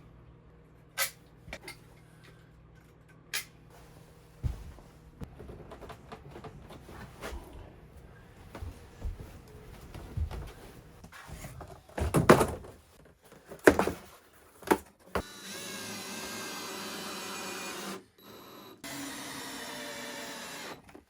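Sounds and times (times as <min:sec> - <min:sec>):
power drill motor running: 0:15.2 - 0:21.0.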